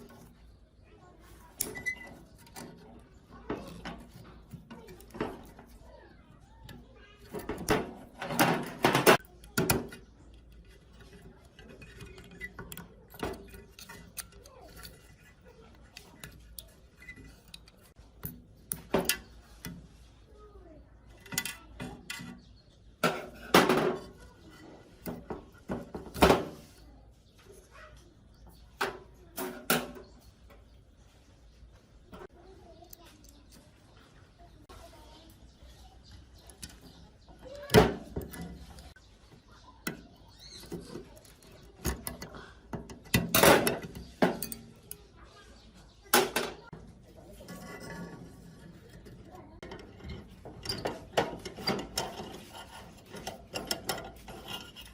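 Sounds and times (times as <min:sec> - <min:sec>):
metal tools clinking and knocking: 0:01.3 - 0:19.9, 0:21.1 - 0:26.8, 0:28.6 - 0:30.7, 0:36.0 - 0:39.0, 0:39.8 - 0:45.1, 0:46.1 - 0:54.9.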